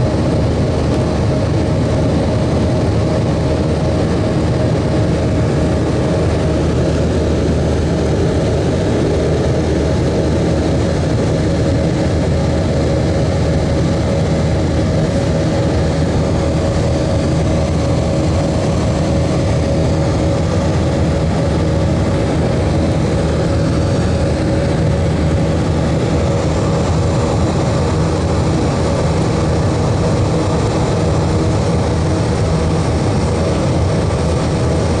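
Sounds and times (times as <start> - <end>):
airplane cabin engine drone: 0.0 - 35.0.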